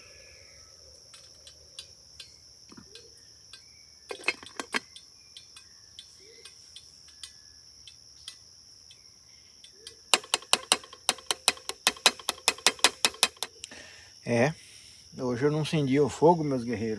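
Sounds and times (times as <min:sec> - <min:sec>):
faint chirps: 0:00.0 - 0:10.1
insects trilling: 0:00.0 - 0:16.9
rapid sharp clicks: 0:10.1 - 0:13.7.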